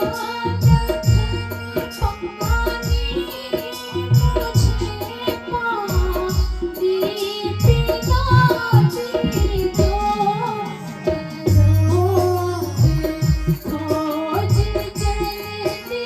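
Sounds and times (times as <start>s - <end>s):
drum beat: 11.1s - 15.5s.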